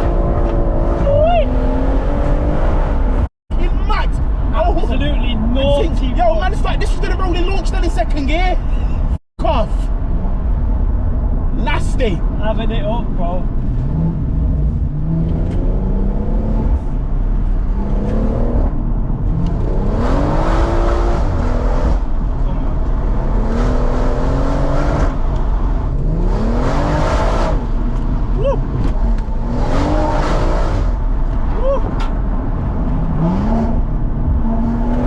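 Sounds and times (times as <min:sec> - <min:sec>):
car engine accelerating: 0:13.5 - 0:35.0.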